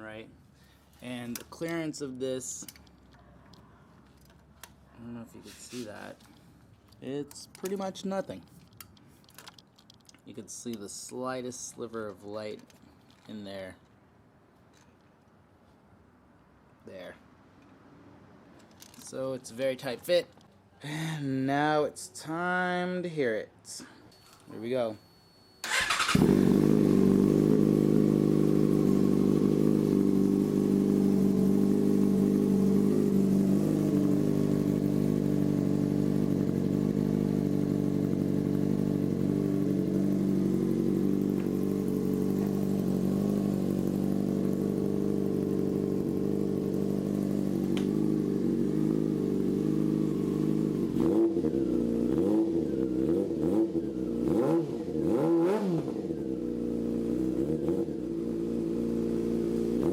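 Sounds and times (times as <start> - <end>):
motorcycle engine idling and revving: 25.7 - 59.9.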